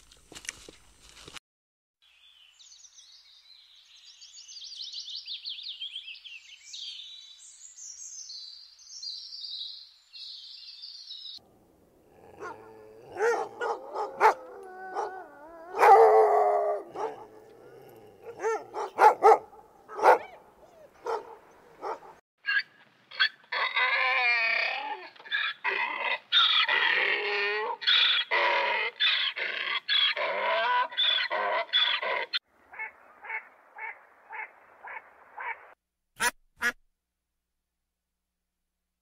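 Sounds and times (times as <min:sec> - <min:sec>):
birds chirping and trilling: 0:02.0 - 0:11.4, 0:12.1 - 0:23.9, 0:25.2 - 0:35.8
dog whining and barking: 0:12.2 - 0:22.6.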